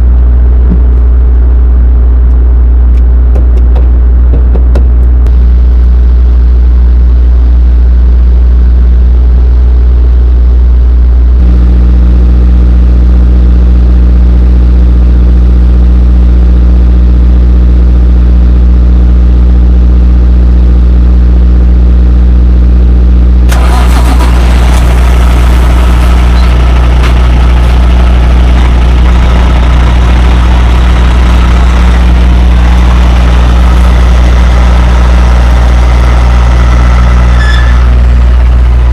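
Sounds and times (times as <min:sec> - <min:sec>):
diesel truck engine idling: 0:23.5 - 0:38.9.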